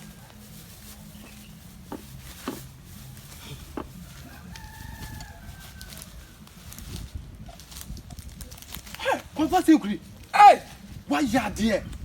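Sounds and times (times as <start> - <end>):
rooster crowing: 4.0 - 6.4.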